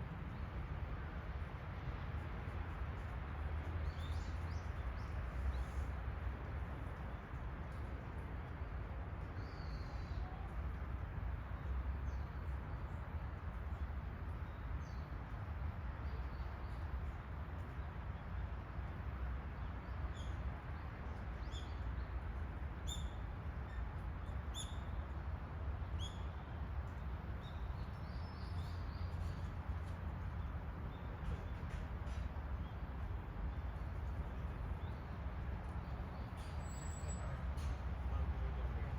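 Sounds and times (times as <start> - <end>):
low outdoor rumble: 20.8 - 38.9.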